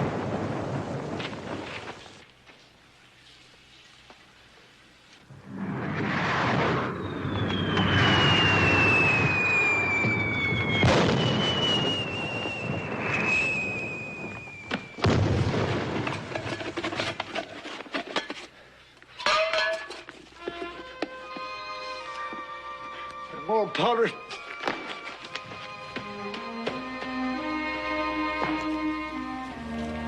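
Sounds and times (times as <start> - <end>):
fireworks crackling: 0.0 - 18.0, 20.0 - 30.0
explosion booms: 5.4 - 16.3
rocket whistle falling in pitch: 6.5 - 15.2
music: 20.4 - 30.0.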